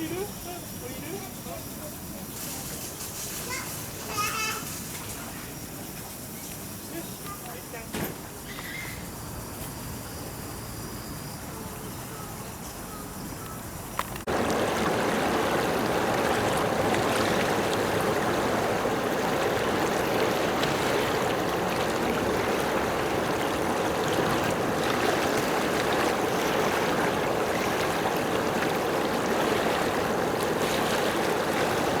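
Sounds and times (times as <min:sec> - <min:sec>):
rushing water: 0:13.8 - 0:32.0.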